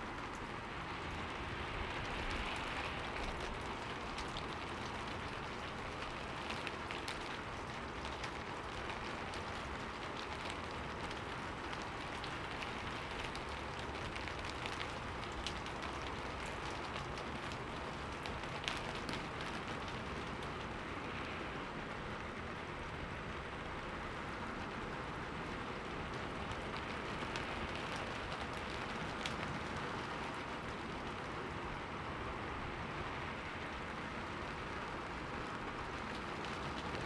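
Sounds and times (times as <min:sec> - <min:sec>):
steady rain falling: 0:00.0 - 0:37.0
raindrop ticks: 0:01.2 - 0:22.3, 0:24.0 - 0:32.5, 0:33.3 - 0:37.0.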